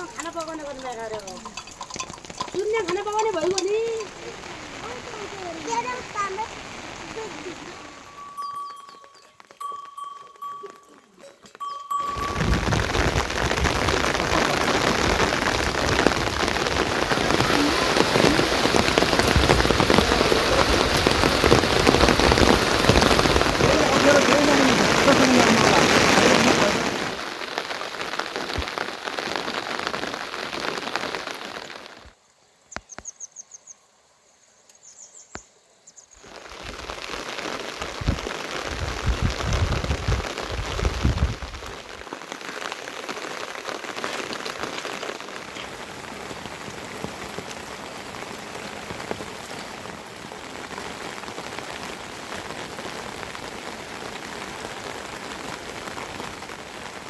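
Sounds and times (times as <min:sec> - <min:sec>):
rain falling: 0:00.0 - 0:32.2, 0:36.2 - 0:57.0
high chirping trills: 0:08.0 - 0:12.6.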